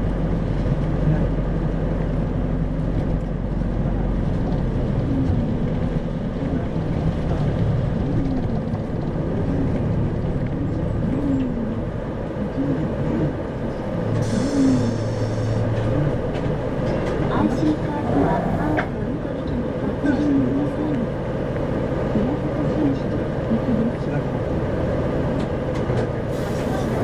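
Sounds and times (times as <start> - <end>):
bus engine and road drone: 0.0 - 27.0
hiss: 14.2 - 15.6, 26.3 - 27.0.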